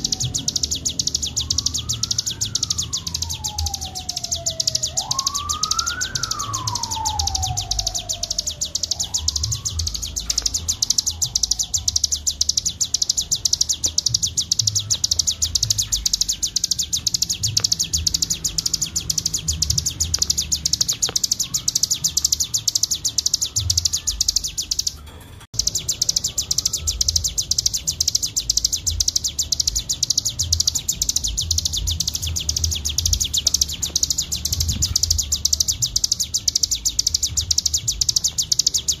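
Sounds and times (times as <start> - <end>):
songbird buzzing trill: 0.0 - 24.9
low sliding whistle: 1.2 - 10.5.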